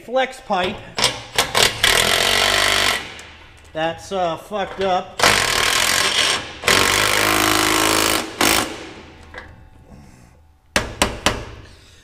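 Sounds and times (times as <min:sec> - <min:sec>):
impact wrench hammering: 0:00.6 - 0:03.8, 0:04.6 - 0:09.6, 0:10.7 - 0:11.7.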